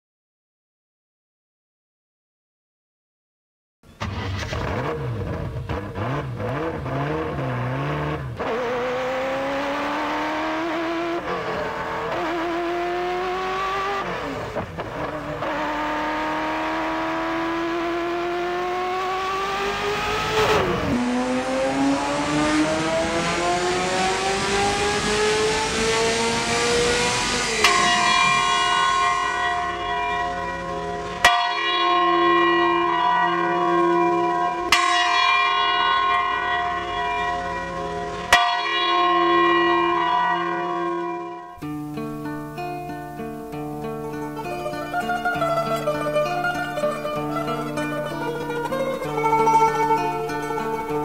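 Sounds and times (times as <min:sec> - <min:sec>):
car engine accelerating: 0:03.9 - 0:31.3, 0:39.0 - 0:51.0.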